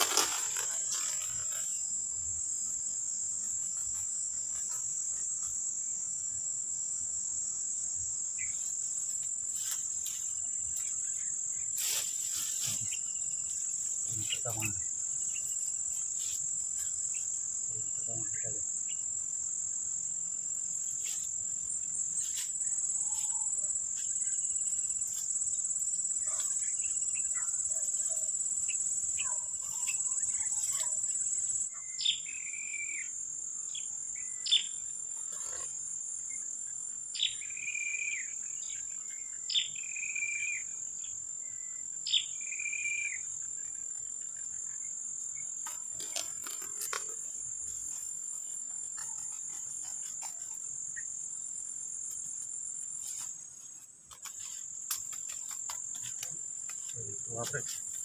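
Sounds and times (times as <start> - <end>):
insect chorus drone: 0.0 - 58.0
whistled bird calls: 42.1 - 43.2.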